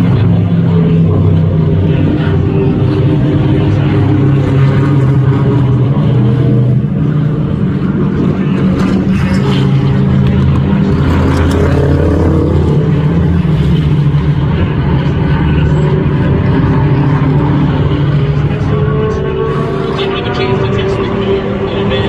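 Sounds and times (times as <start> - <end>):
race car engines: 0.0 - 22.0.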